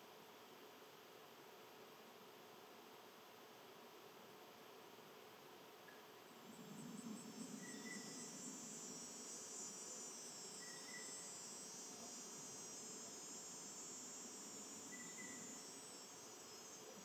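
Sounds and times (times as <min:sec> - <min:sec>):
high-pitched insect trilling: 0:06.4 - 0:17.0.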